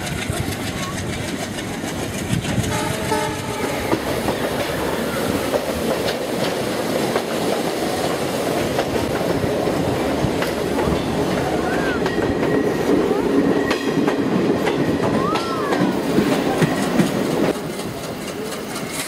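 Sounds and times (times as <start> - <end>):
rail joint clicks: 0.0 - 19.0
train wheel and rail rumble: 0.0 - 19.0
train horn: 2.7 - 4.0.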